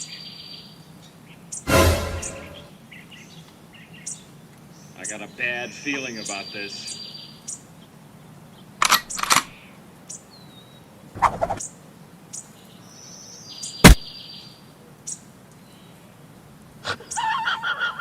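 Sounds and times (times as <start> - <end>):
short sudden noises: 1.7 - 2.7, 11.2 - 11.6
sharp crack: 8.8 - 9.5, 11.2 - 11.6, 13.8 - 14.1.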